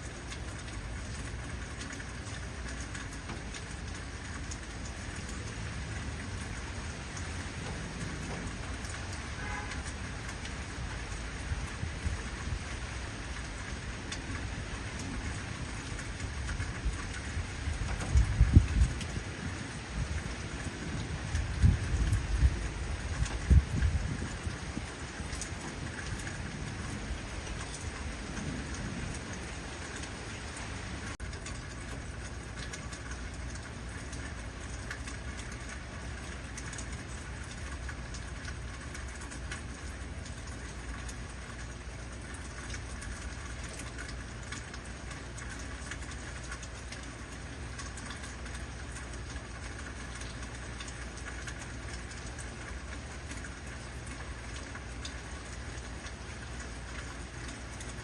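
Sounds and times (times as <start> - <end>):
heavy rain falling: 0.0 - 58.0
low thunder rumble: 15.0 - 30.0.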